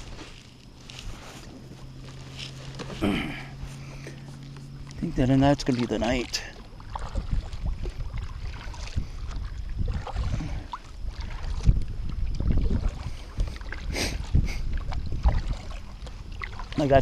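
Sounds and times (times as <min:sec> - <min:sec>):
wind on microphone: 0:06.8 - 0:17.0.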